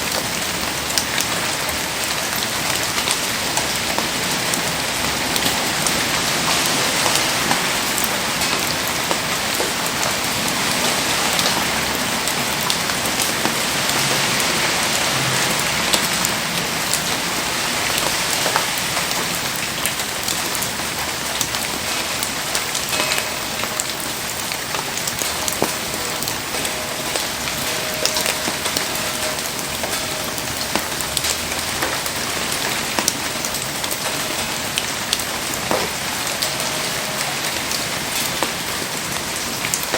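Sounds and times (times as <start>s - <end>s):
heavy rain falling: 0.0s - 39.9s
sharp drip clicks: 22.2s - 38.5s.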